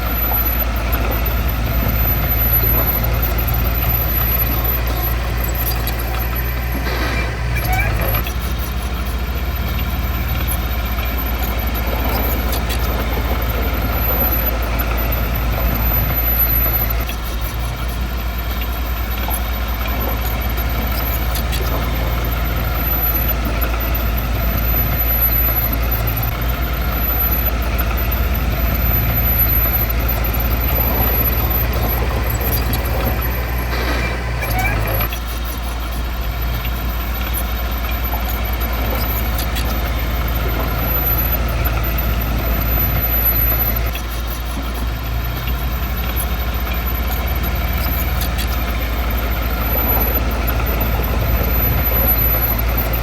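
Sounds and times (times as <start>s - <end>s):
heavy diesel engine rumbling: 0.0s - 53.0s.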